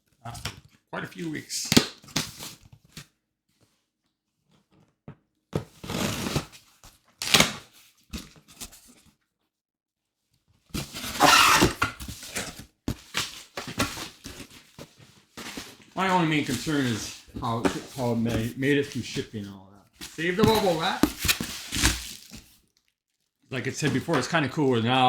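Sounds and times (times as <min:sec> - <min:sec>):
cardboard box tearing and rustling: 0:05.7 - 0:08.9, 0:10.8 - 0:14.8, 0:15.4 - 0:19.2, 0:20.0 - 0:22.6.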